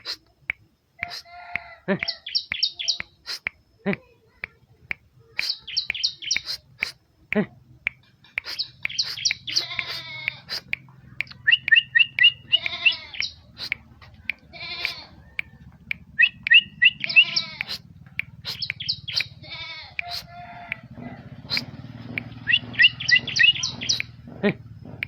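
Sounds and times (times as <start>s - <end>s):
bird buzzy nasal notes: 0.0s - 0.3s, 1.0s - 4.1s, 5.2s - 7.6s, 8.3s - 24.7s
bird sharp chirps: 2.0s - 3.5s, 5.3s - 7.0s, 7.9s - 19.4s, 20.0s - 20.8s, 21.4s - 25.0s
bird paired whistled notes: 8.4s - 13.8s, 16.2s - 17.8s, 22.4s - 24.1s.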